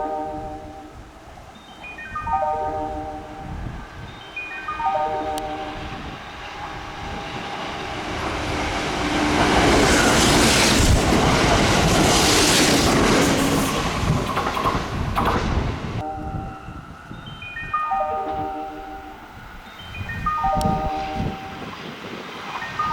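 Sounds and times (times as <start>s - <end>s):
train passing through station: 0.0s - 22.9s
wheels clattering over rail joints: 7.4s - 16.0s.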